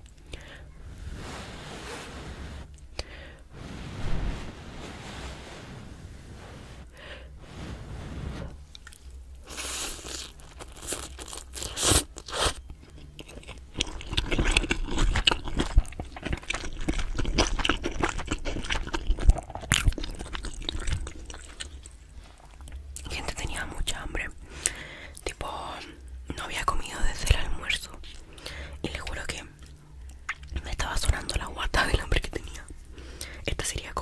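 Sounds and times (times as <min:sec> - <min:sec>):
crunchy chewing: 0:08.7 - 0:23.1.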